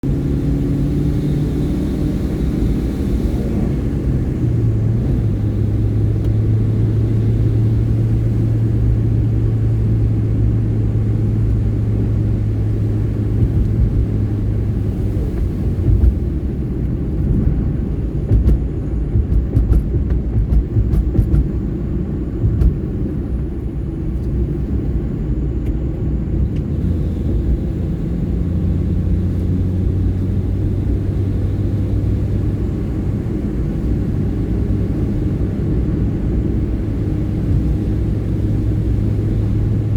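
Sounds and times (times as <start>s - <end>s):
car engine and road rumble: 0.0s - 39.9s
knocks and rattles: 18.3s - 21.6s.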